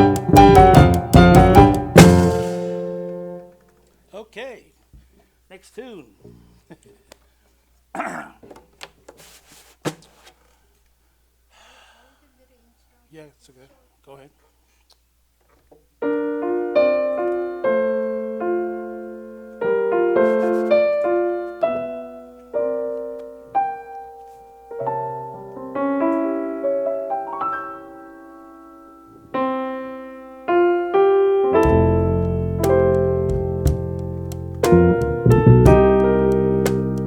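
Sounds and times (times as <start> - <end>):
bass: 0.0 - 3.0, 31.6 - 37.0
drums: 0.0 - 3.0, 32.6 - 35.9
jazz keyboard playing: 0.0 - 3.5, 16.0 - 37.0.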